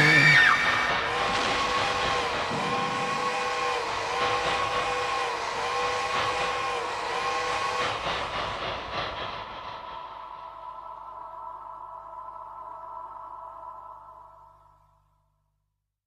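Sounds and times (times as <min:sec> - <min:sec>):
train horn chord: 0:00.0 - 0:07.8
moving train noise: 0:00.0 - 0:14.7.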